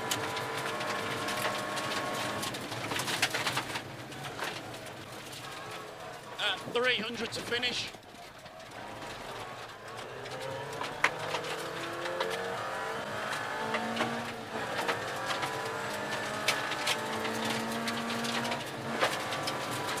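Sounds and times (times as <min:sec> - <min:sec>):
car engine accelerating hard: 0:00.0 - 0:06.6, 0:08.4 - 0:20.0
sharp clicks and knocks: 0:07.2 - 0:20.0.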